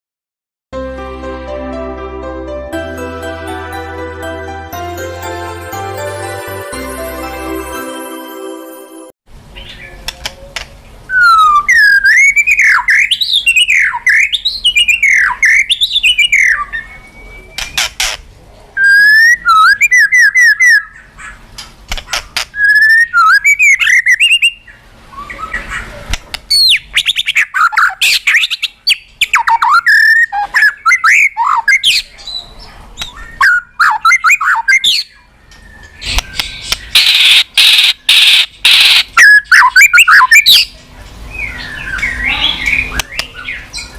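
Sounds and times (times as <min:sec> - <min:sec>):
songbird singing: 0:34.1 - 0:43.9.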